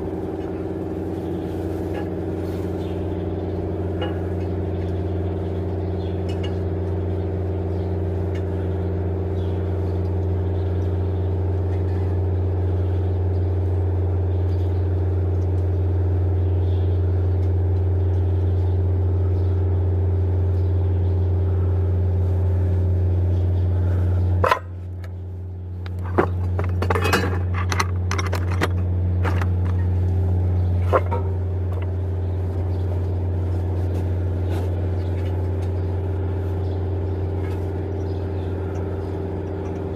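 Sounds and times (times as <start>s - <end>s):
sharp metallic clicks and knocks: 25.8s - 29.9s.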